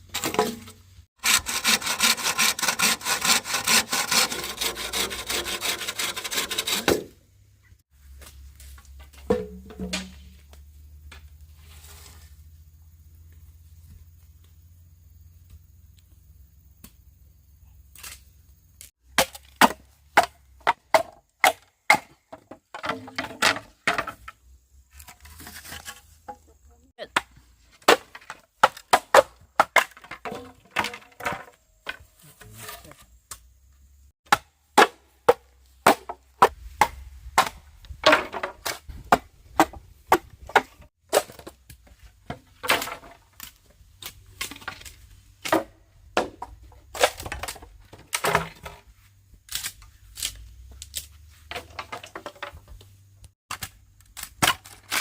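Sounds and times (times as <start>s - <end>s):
blade chopping bamboo: 0.1s - 7.2s, 34.3s - 48.8s, 49.5s - 52.4s, 53.5s - 55.0s.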